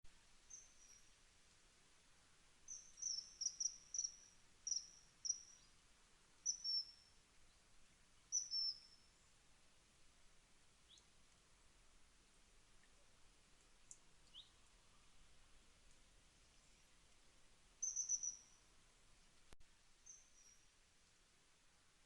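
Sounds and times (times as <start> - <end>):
small bird chirping: 0.5 - 1.1, 2.7 - 5.7, 6.4 - 7.1, 8.3 - 9.2, 14.3 - 14.6, 17.8 - 18.6, 20.0 - 20.7.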